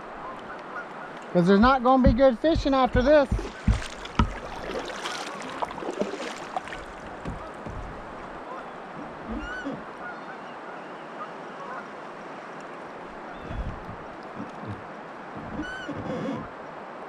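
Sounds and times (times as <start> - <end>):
birds calling: 0.0 - 11.8, 13.1 - 16.5
river water flowing: 0.0 - 17.0
dull low knocks: 1.6 - 9.9, 13.3 - 16.5.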